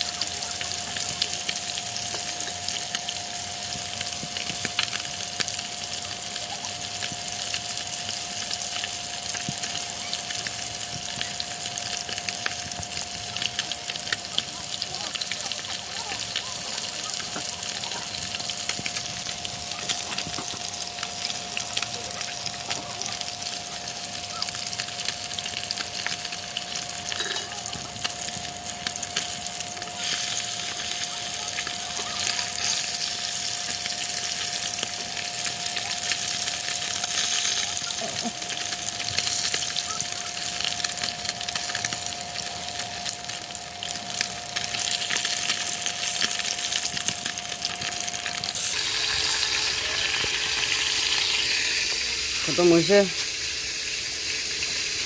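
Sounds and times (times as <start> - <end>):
food sizzling in hot oil: 0.0 - 55.0
thin steady tone: 47.9 - 55.0.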